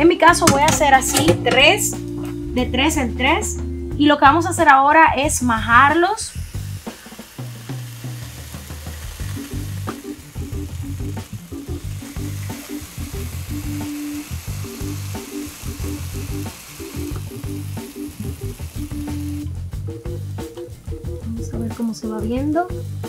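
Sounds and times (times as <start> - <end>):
background music: 0.0 - 23.0
plantain sizzling in waffle maker: 5.3 - 19.6.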